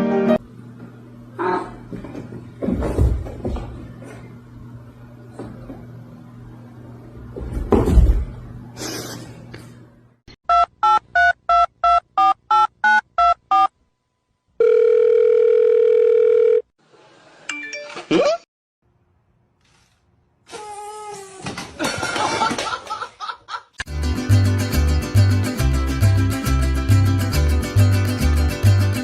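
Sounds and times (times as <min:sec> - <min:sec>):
telephone ringback tone: 0:14.6 - 0:16.7.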